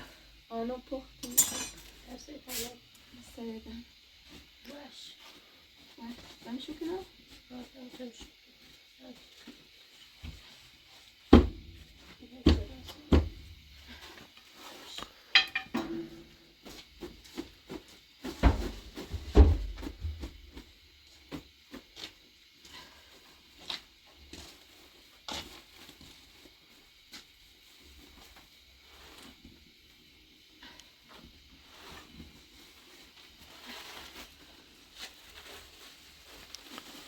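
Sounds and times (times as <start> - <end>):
pots and dishes clattering: 1.2 - 2.0, 15.3 - 16.4.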